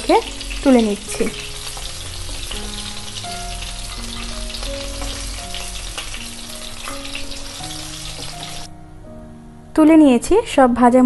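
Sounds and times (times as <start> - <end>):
fish sizzling in hot oil: 0.0 - 8.7
soft background melody: 0.0 - 11.0.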